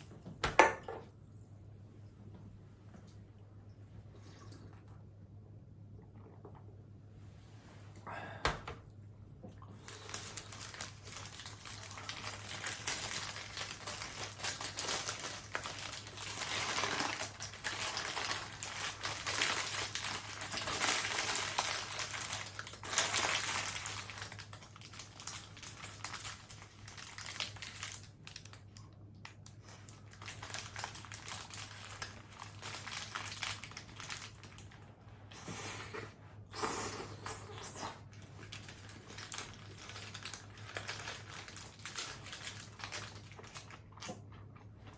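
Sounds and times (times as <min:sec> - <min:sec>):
paper wrapper crinkling: 0:09.8 - 0:34.9, 0:38.1 - 0:43.9.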